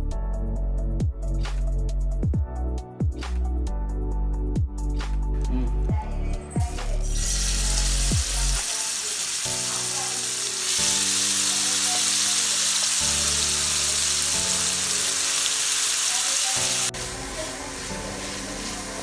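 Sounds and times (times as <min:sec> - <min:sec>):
background music: 0:00.0 - 0:19.0
crabs sizzling in frying pan: 0:07.1 - 0:19.0.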